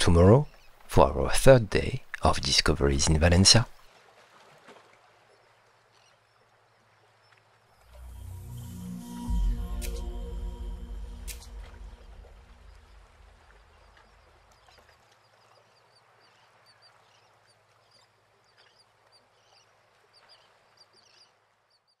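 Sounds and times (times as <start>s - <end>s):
music: 7.9s - 13.8s
small birds chirping: 12.7s - 22.0s.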